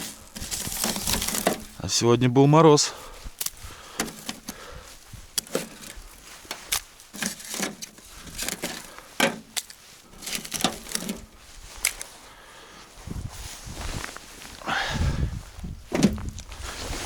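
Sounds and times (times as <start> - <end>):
wooden boards knocking and clattering: 0.0 - 1.7, 5.4 - 11.3, 15.9 - 16.4.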